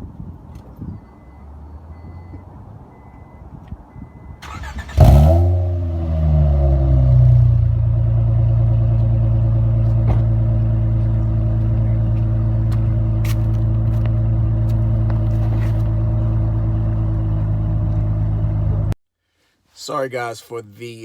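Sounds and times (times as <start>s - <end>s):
car engine idling: 4.5s - 19.0s.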